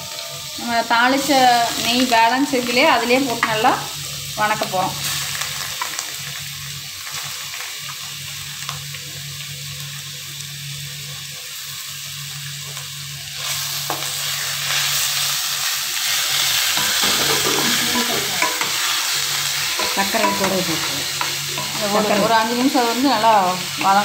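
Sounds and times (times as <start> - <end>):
vegetables sizzling in a pan: 0.0 - 24.0
spoon stirring in a pan: 16.7 - 24.0.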